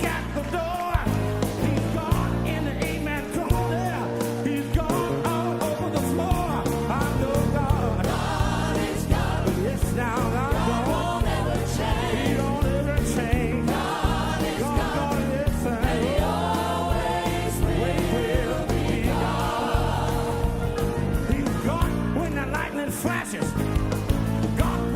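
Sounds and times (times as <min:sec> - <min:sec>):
choir singing gospel: 0:00.0 - 0:24.9
live band with bass and drums: 0:00.0 - 0:24.9.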